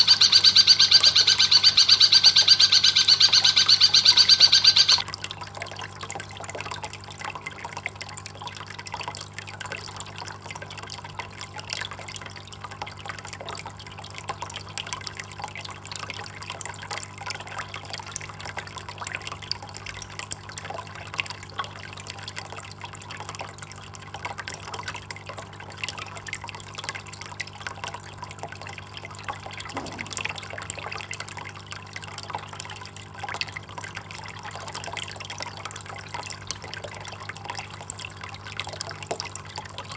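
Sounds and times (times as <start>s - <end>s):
steady low hum: 0.0s - 5.0s
water trickling and dripping: 0.0s - 39.9s.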